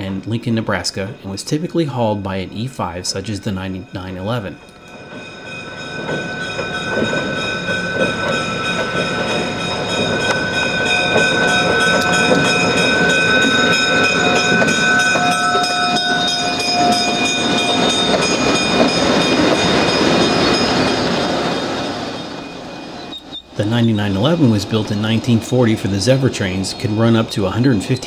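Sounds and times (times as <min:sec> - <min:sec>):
wheels clicking over rail joints: 0:00.0 - 0:28.0
high-pitched wheel squeal: 0:21.6 - 0:25.1.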